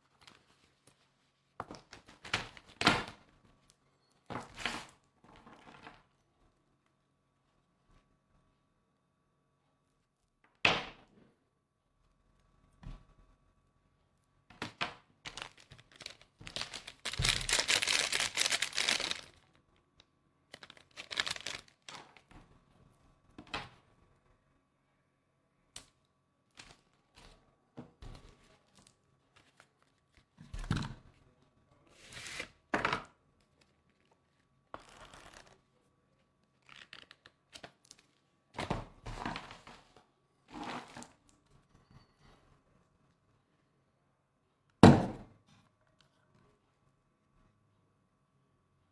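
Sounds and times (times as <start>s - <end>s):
rustling and crinkling handling noise: 15.2s - 22.3s, 28.0s - 31.2s.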